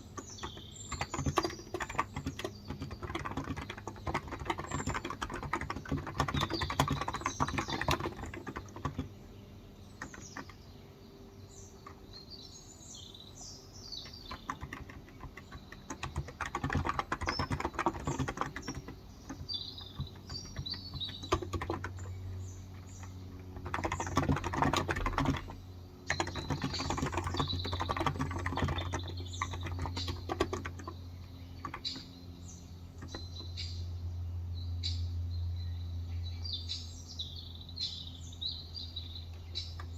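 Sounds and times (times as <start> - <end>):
keyboard typing: 0.0 - 10.7, 11.6 - 12.2, 13.8 - 32.2, 32.8 - 33.5
small birds chirping: 0.0 - 39.9.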